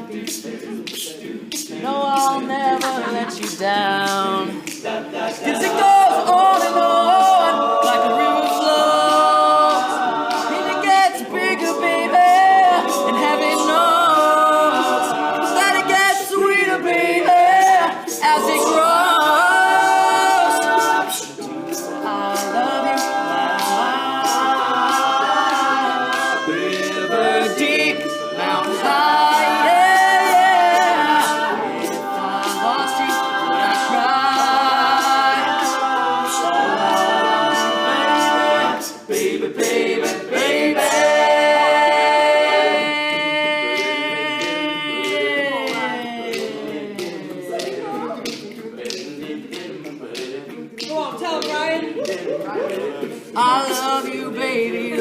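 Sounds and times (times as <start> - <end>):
men's a cappella group singing: 0.0 - 55.0
sharp clicks beat: 17.5 - 40.2.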